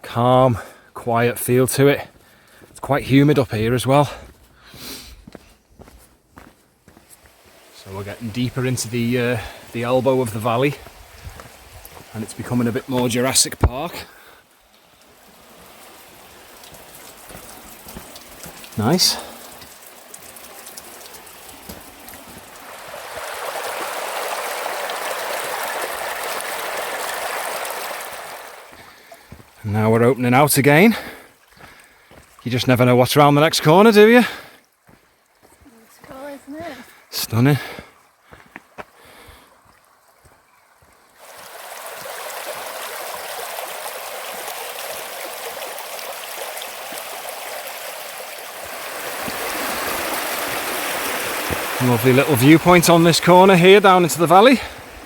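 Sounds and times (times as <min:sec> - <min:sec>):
running water splashing: 0:03.0 - 0:55.0.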